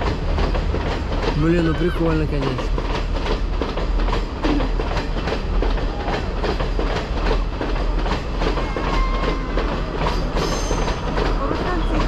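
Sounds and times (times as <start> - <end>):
train low rumble: 0.0 - 12.0
train wheels clattering over rail joints: 0.0 - 12.0.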